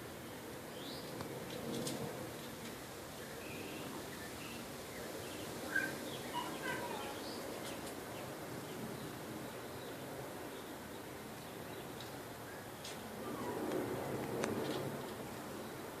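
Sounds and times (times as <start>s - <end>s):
outdoor background hiss: 0.0s - 16.0s
bird chirps: 5.3s - 7.9s.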